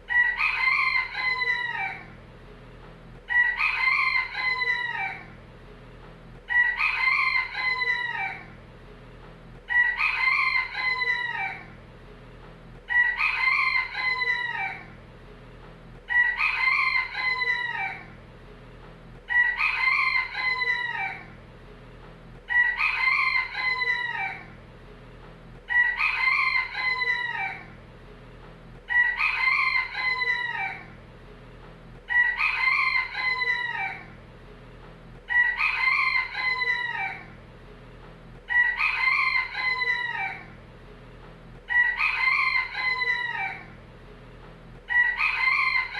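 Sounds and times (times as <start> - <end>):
rooster crowing: 0.1 - 2.2, 3.3 - 5.4, 6.5 - 8.6, 9.7 - 11.8, 12.9 - 15.0, 16.1 - 18.2, 19.3 - 21.4, 22.5 - 24.6, 25.7 - 27.8, 28.9 - 31.0, 32.1 - 34.2, 35.3 - 37.4, 38.5 - 40.6, 41.7 - 43.8, 44.9 - 45.9.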